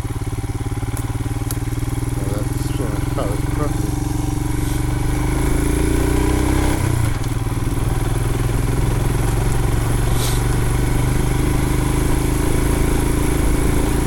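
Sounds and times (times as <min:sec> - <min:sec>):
motorcycle engine running: 0:00.0 - 0:14.0
brief hiss: 0:10.1 - 0:10.4.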